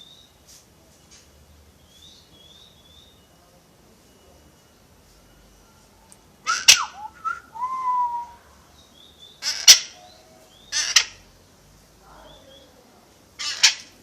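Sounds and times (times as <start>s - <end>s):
parrot squawking: 9.4s - 10.0s, 10.7s - 11.2s, 13.4s - 13.9s.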